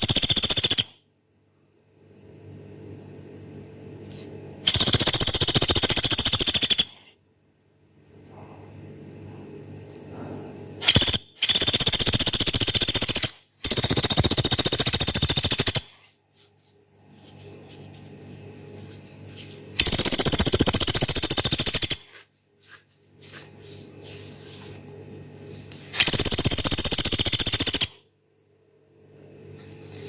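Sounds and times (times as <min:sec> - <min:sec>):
woodpecker rattling calls: 0:00.0 - 0:00.9, 0:04.7 - 0:07.0, 0:10.8 - 0:16.0, 0:19.8 - 0:22.1, 0:26.0 - 0:28.0.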